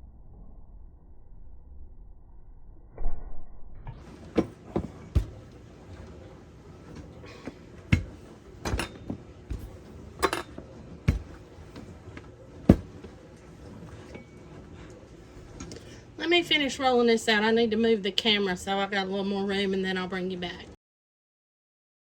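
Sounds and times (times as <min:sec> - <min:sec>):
rolling pin thumping on counter: 0:04.2 - 0:05.6, 0:07.9 - 0:11.9, 0:12.6 - 0:13.2.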